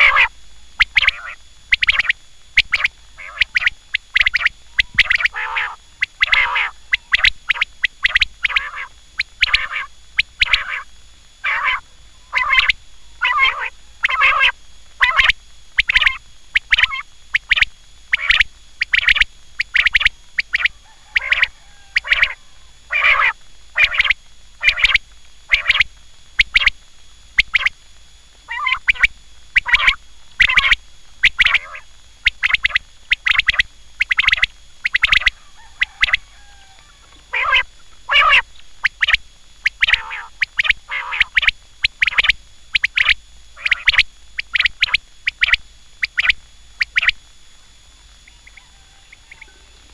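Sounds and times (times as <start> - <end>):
quail calling: 0.0 - 26.8, 27.4 - 27.8, 28.5 - 47.2, 48.0 - 49.9.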